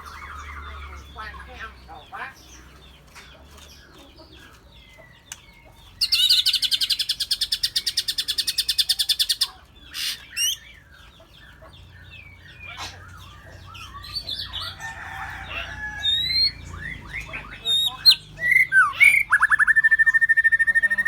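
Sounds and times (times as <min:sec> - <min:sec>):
fast bird trill: 0:06.0 - 0:10.7, 0:12.3 - 0:21.0
bird chirps and whistles: 0:16.4 - 0:21.0.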